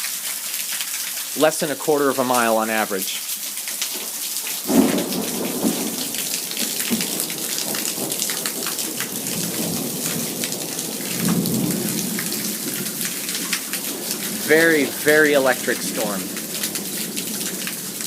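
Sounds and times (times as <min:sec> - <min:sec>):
heavy rain: 0:00.0 - 0:18.0
thunder clap and rumbling: 0:04.7 - 0:18.0.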